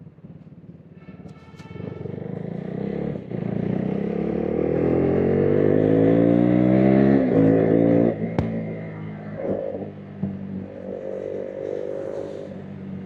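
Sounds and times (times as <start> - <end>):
motorcycle engine accelerating: 2.0 - 13.0
sharp exhaust crack: 8.2 - 9.5.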